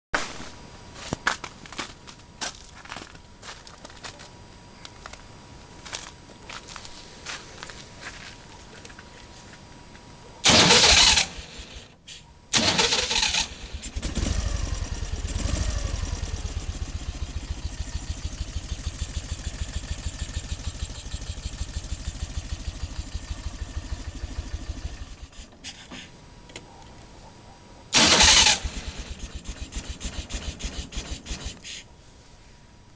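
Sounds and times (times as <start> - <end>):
electric starter cranking: 10.4 - 16.9, 28.0 - 31.7
motorcycle engine running: 12.6 - 25.6, 28.0 - 31.6.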